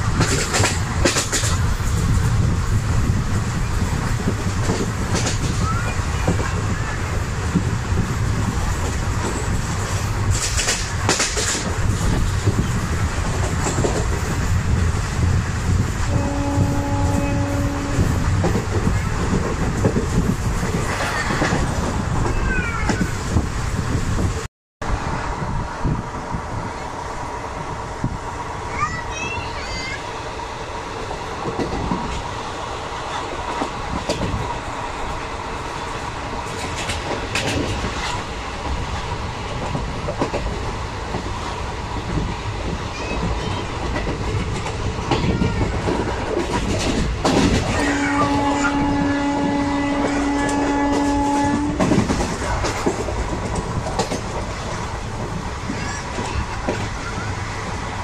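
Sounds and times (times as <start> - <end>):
train wheels clattering over joints: 0.0 - 2.5, 3.4 - 14.9, 35.8 - 57.7
train horn blast: 16.1 - 18.2, 47.7 - 51.9.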